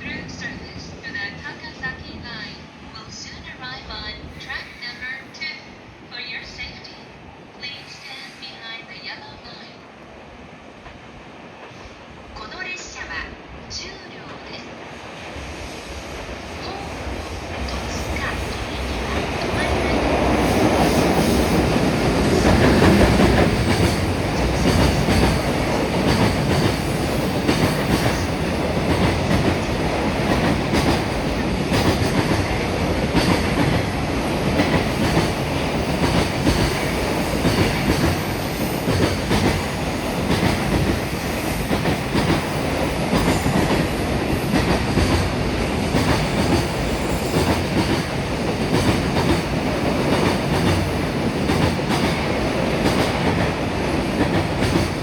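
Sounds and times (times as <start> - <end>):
train rolling rumble: 10.4 - 55.0
train wheels clickety-clack: 16.7 - 55.0.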